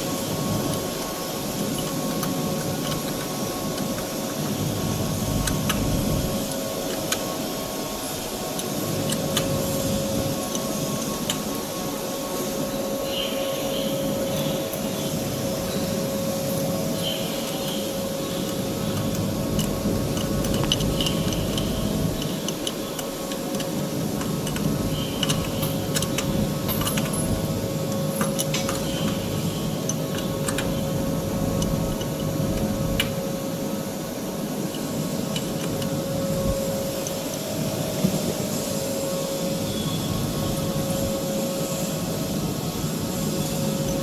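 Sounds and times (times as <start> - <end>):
metallic clicks and clinks: 17.6 - 30.9.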